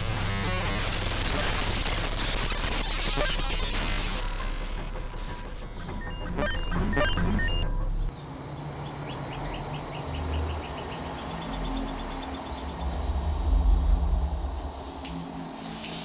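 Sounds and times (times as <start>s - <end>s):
birds chirping: 8.1s - 15.8s
low rumble: 12.7s - 15.0s.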